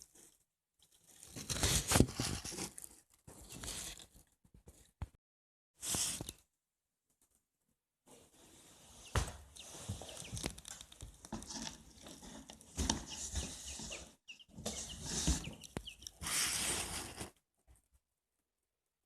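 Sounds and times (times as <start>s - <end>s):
rustling and scratching: 0.0s - 4.9s, 8.1s - 17.9s
chicks peeping: 9.0s - 17.2s.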